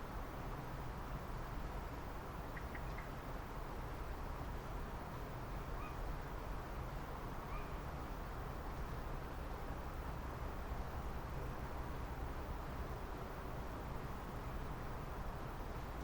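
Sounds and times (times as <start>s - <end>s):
low rumble and hiss: 0.0s - 16.0s
short bird calls: 7.5s - 7.8s.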